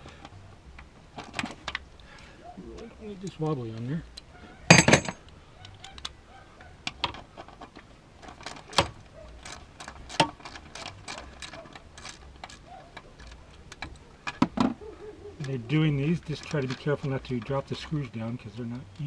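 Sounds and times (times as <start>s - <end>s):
metallic clatter: 4.7s - 5.2s, 7.1s - 14.7s.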